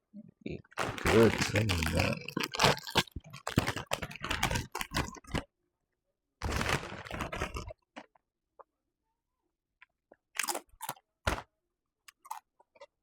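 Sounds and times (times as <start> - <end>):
chewing crunchy tortilla chips: 0.7 - 5.5, 6.4 - 8.2, 10.1 - 13.0.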